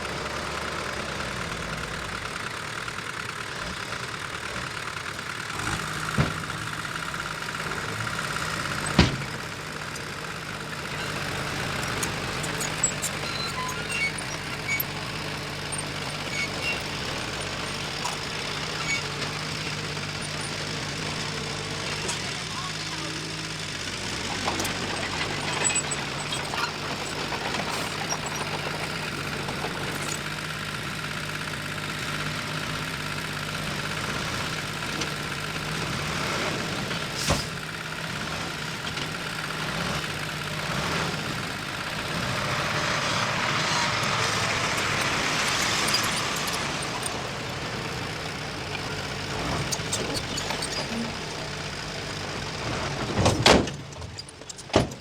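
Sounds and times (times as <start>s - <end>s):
heavy machinery diesel engine: 0.0s - 55.0s
metal clanks: 24.0s - 30.3s.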